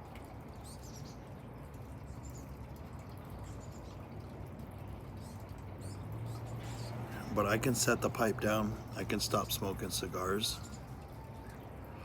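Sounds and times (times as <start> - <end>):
songbirds chirping: 0.3 - 12.0.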